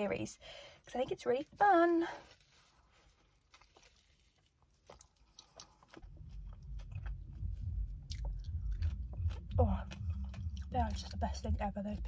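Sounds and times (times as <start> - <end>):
person chewing sandwich: 2.2 - 11.0
low rumble: 6.0 - 12.0.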